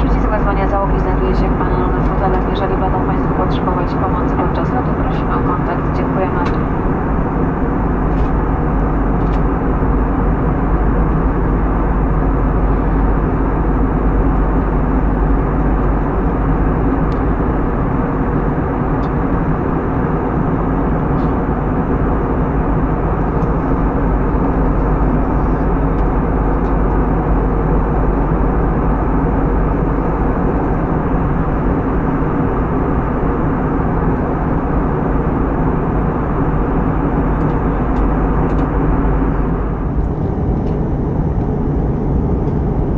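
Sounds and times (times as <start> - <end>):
jet engine noise in cabin: 0.0 - 42.9.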